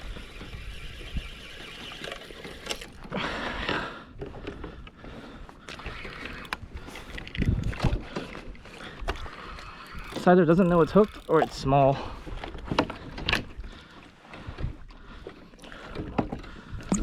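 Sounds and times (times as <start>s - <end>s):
water and boat sounds: 0.0s - 17.0s
wind buffeting microphone: 6.6s - 8.2s.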